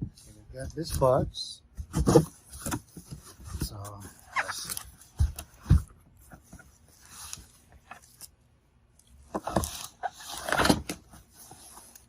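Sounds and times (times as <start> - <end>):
scrapes and knocks in cardboard box: 1.8 - 6.8.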